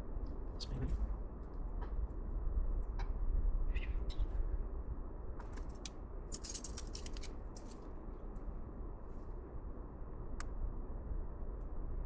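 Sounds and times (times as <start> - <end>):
small metal parts and tools clicking: 5.4 - 7.9.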